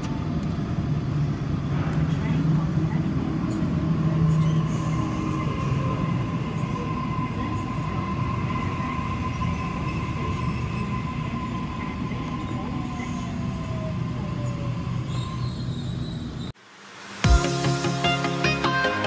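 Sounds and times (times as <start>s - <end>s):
electric train rumbling: 0.0s - 18.9s
high squeal: 4.2s - 16.6s.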